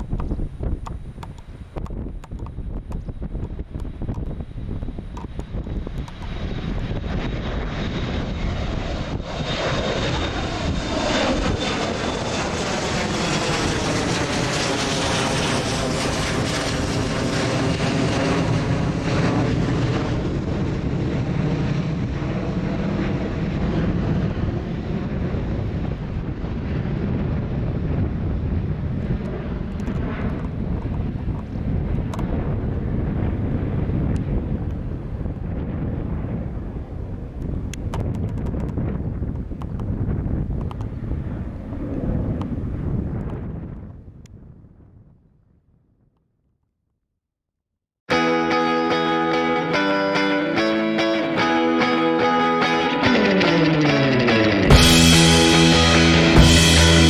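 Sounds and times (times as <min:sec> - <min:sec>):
jet airliner engine roar: 0:00.0 - 0:44.2, 0:48.1 - 0:57.0
wind buffeting microphone: 0:00.0 - 0:45.5.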